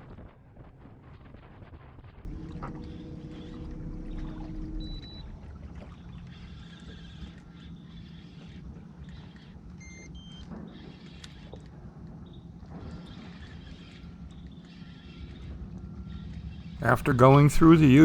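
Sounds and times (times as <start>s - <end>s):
boat motor rumbling: 2.3s - 8.8s, 16.8s - 18.0s.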